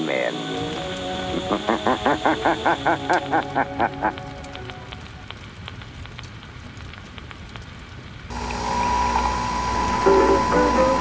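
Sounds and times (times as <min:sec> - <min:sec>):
hum with high tone: 0:00.0 - 0:05.3, 0:08.3 - 0:11.0
record surface noise crackling: 0:00.0 - 0:11.0.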